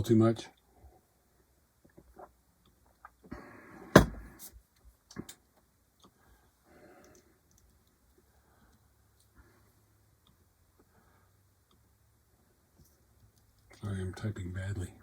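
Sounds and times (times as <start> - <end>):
sharp knock: 4.0 - 4.3.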